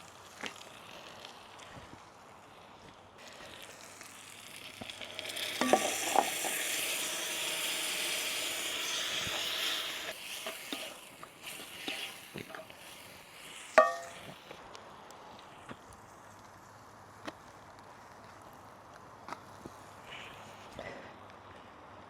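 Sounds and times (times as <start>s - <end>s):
food sizzling in a hot pan: 0.0s - 17.1s.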